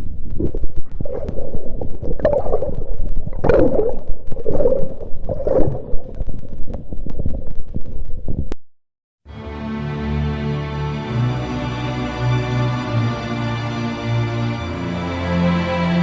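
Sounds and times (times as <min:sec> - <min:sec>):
water sloshing and gurgling: 0:00.2 - 0:08.4.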